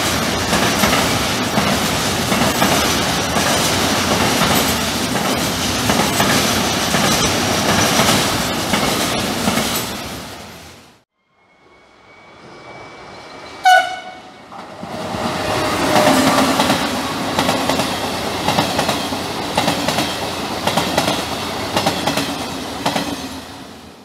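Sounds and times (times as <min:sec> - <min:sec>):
train rumbling past: 0:00.0 - 0:24.0
wheels clicking over rail joints: 0:00.3 - 0:10.0
train horn blast: 0:13.6 - 0:14.4.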